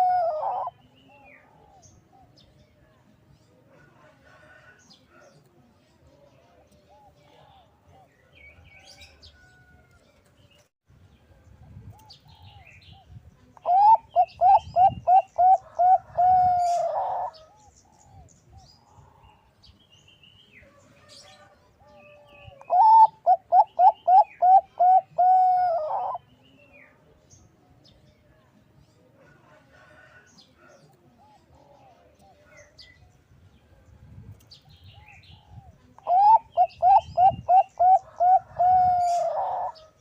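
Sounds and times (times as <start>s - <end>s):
dove cooing: 0.0s - 2.4s, 13.6s - 18.3s, 22.1s - 26.2s, 35.0s - 39.9s.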